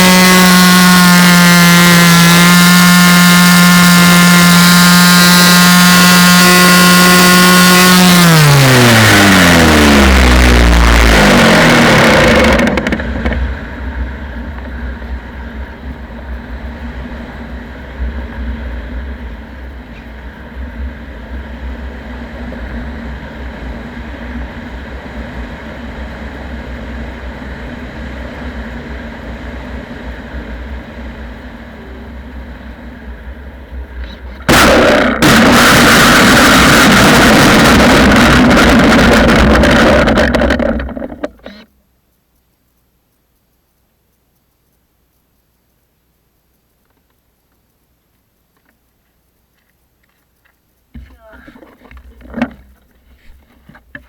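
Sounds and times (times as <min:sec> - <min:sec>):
electric motor whirring: 0:00.0 - 0:13.8, 0:34.1 - 0:41.6
low rumble: 0:31.3 - 0:41.4.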